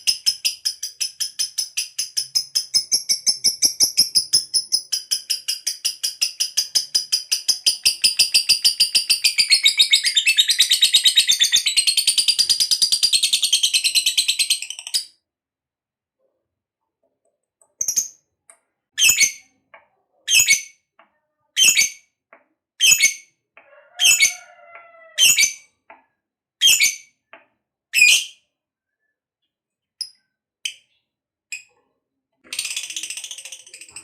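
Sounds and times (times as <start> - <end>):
continuous bird chatter: 0.0 - 15.0, 29.4 - 34.0
faint bird chirps: 28.0 - 34.0.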